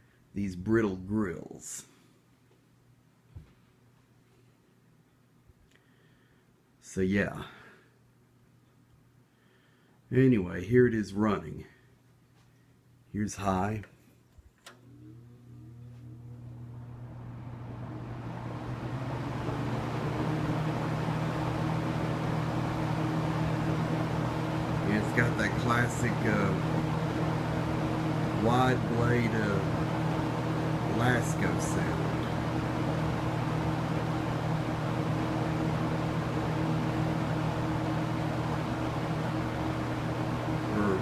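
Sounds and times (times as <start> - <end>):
box fan running: 14.6 - 41.0.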